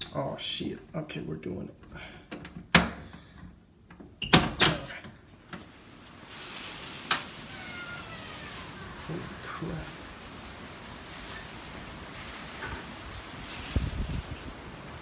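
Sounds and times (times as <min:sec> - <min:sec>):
storm wind and rain: 0:05.3 - 0:15.0.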